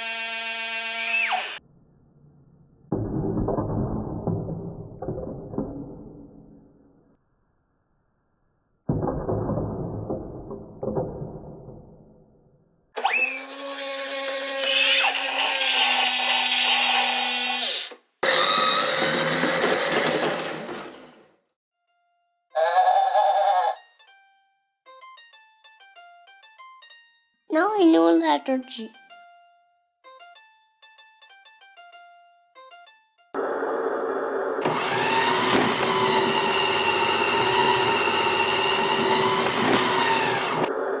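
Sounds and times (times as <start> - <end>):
toy truck motor buzzing: 0.0 - 1.6, 13.0 - 20.7, 33.4 - 41.0.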